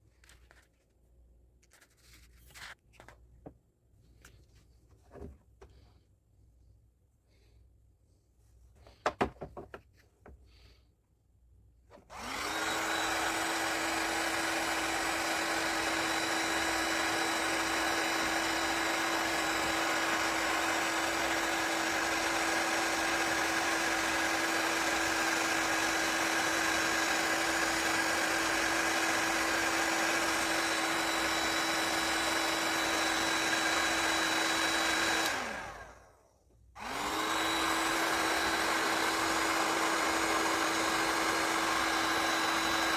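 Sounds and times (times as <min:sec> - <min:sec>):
power tool motor humming: 0:12.1 - 0:36.0, 0:36.8 - 0:42.9.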